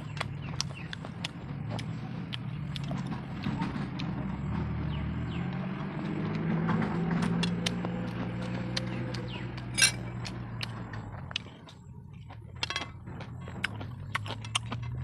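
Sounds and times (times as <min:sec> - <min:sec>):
chewing and lip smacking: 0:00.0 - 0:04.2, 0:07.4 - 0:15.0.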